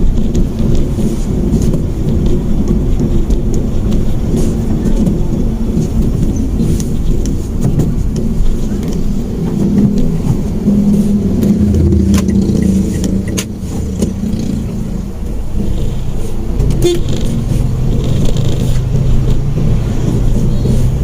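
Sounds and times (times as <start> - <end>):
car engine hum: 0.0 - 21.0
road noise: 0.0 - 21.0.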